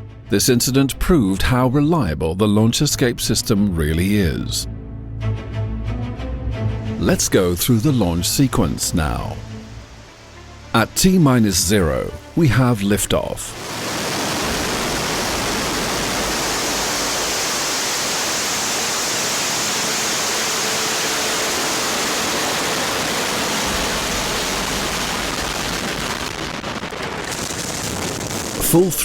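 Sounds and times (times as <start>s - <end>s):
rocket engines rushing: 13.5s - 29.0s.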